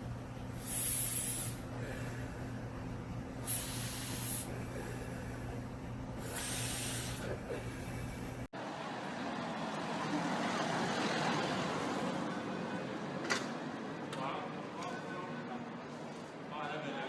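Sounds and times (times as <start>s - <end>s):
low hum: 0.0s - 8.5s
short hisses: 0.6s - 2.1s, 3.4s - 5.0s, 6.2s - 7.4s.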